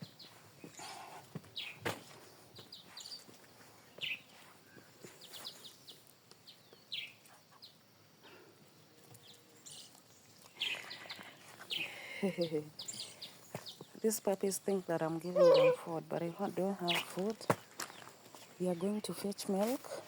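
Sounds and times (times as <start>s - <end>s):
bird chirps: 2.7s - 3.3s, 3.9s - 7.8s, 9.2s - 14.0s, 15.2s - 16.0s.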